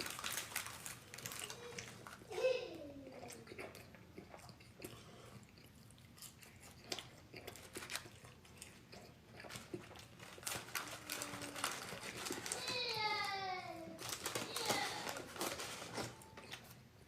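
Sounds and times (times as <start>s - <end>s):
food crunching: 0.0s - 2.4s, 3.0s - 16.8s
person chewing and biting food: 3.1s - 12.5s.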